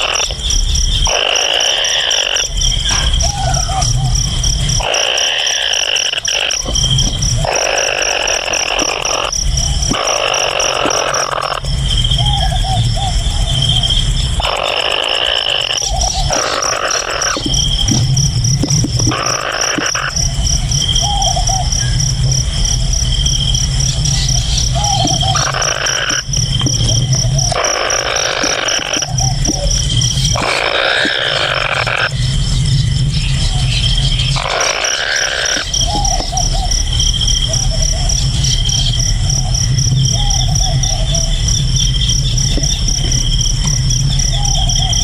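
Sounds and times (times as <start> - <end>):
wavering animal calls: 0.0 - 32.3, 33.2 - 45.0
insects chirping: 0.0 - 45.0
low insect trill: 0.0 - 45.0
steady low rumble: 11.6 - 19.5, 20.1 - 30.6, 31.6 - 34.5.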